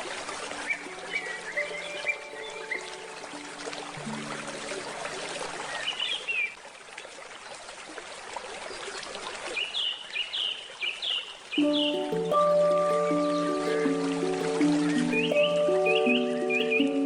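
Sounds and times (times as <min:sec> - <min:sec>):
stream water flowing: 0:00.0 - 0:17.0
handpan note: 0:00.4 - 0:05.6, 0:11.6 - 0:17.0
birds chirping: 0:00.5 - 0:06.6, 0:09.6 - 0:17.0.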